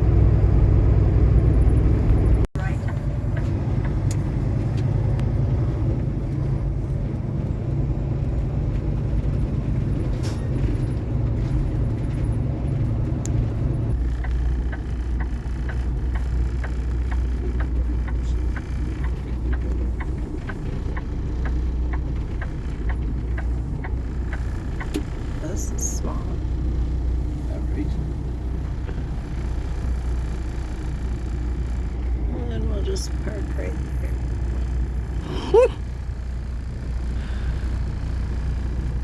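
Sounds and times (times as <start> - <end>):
truck diesel engine rumbling: 0.0 - 39.0
turn signal clicking: 2.6 - 5.3, 13.0 - 25.7.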